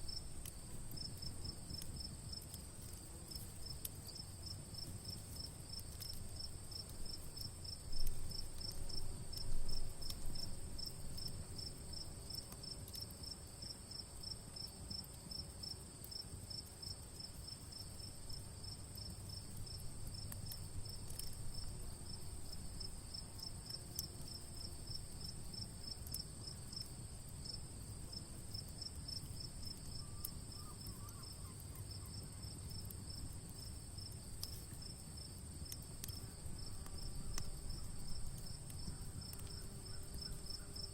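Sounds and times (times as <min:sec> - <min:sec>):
campfire crackling: 0:00.0 - 0:40.9
crickets chirping: 0:00.0 - 0:40.9
campfire pops: 0:00.1 - 0:11.4, 0:17.9 - 0:24.1, 0:28.7 - 0:40.7.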